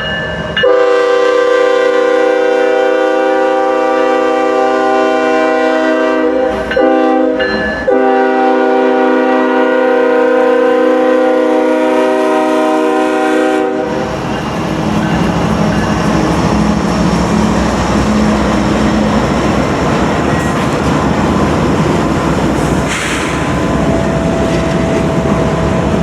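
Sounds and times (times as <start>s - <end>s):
locomotive air horn chord: 0.6s - 14.1s
locomotive engine rumble: 13.6s - 26.0s
wheels clattering on rail: 14.1s - 26.0s.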